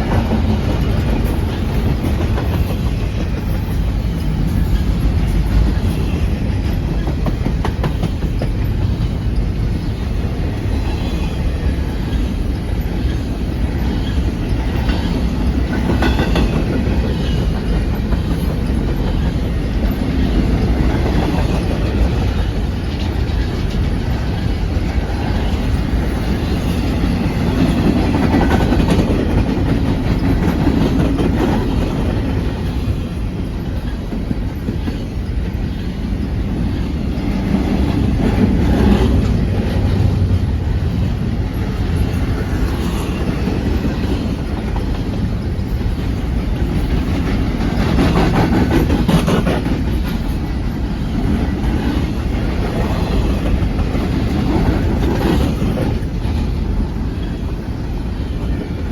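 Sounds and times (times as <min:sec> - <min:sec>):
freight train rumbling past: 0:00.0 - 0:58.9
wheels clickety-clack on rail joints: 0:00.0 - 0:58.9.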